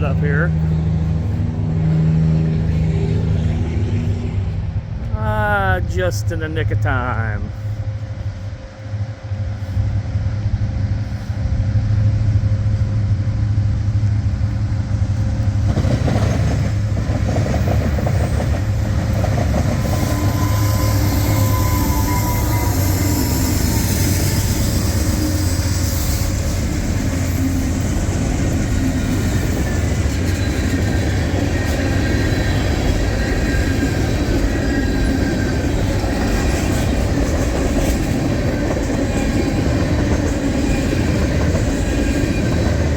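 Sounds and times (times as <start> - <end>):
locomotive engine rumble: 0.0 - 42.9
train wheels clacking on rails: 13.4 - 42.9
high-pitched wheel squeal: 19.8 - 26.4.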